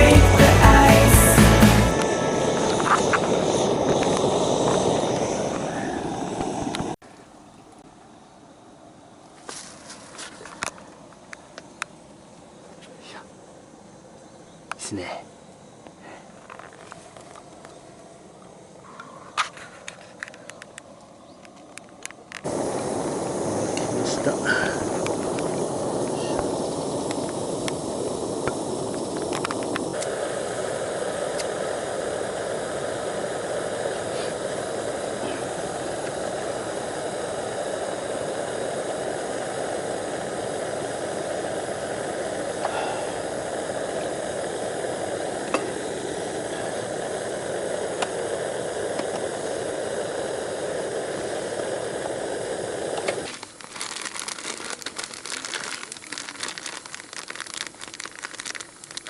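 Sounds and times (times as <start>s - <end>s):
camping stove burner hissing: 0.0s - 7.8s, 9.5s - 59.0s.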